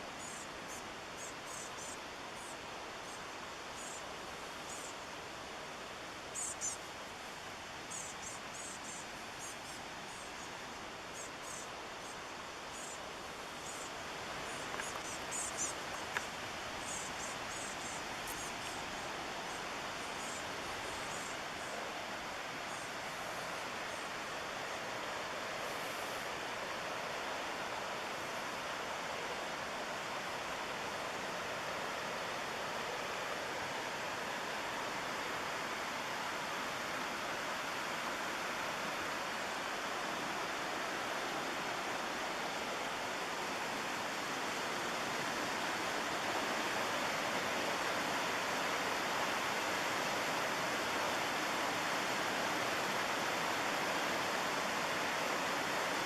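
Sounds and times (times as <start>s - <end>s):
fast river water roaring: 11.7s - 56.0s.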